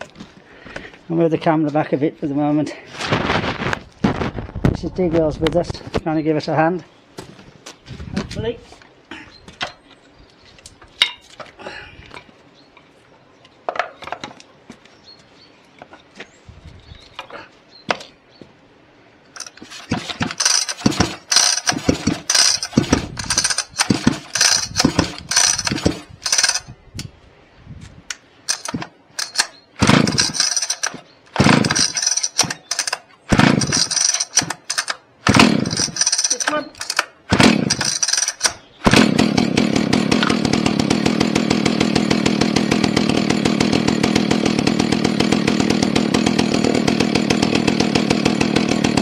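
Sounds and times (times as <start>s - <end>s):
chainsaw engine coughing: 19.4s - 26.7s, 28.5s - 49.0s
handling knocks and clicks: 19.4s - 26.7s, 28.5s - 38.6s.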